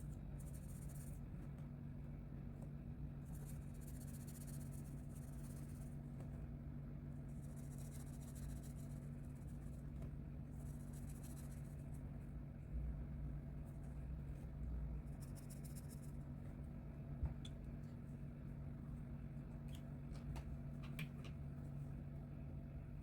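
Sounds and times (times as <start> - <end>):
steady low hum: 0.0 - 23.0
coloring strokes scratching on paper: 7.3 - 12.0.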